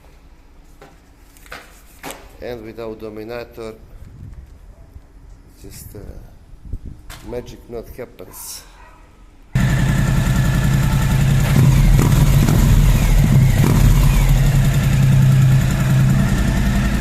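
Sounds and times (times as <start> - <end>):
motorcycle engine idling: 9.6 - 17.0.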